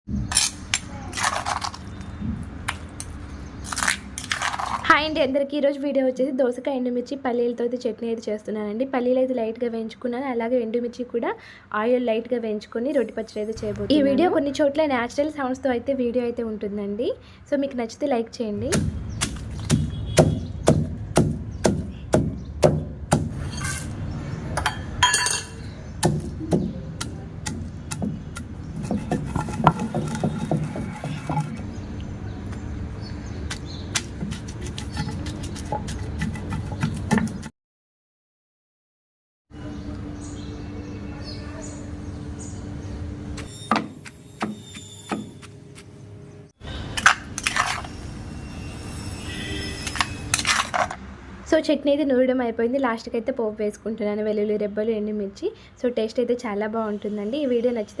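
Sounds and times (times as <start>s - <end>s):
pestle pounding in a mortar: 18.7s - 23.6s, 26.0s - 31.6s, 33.4s - 37.5s.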